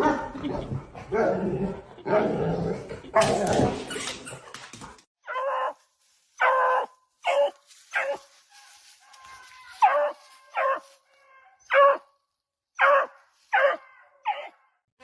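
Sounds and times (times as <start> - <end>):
dog barking: 6.4 - 8.2, 9.8 - 10.9, 11.6 - 12.1, 12.8 - 14.6
dog yelping: 6.4 - 8.3, 9.2 - 12.1, 12.8 - 14.6.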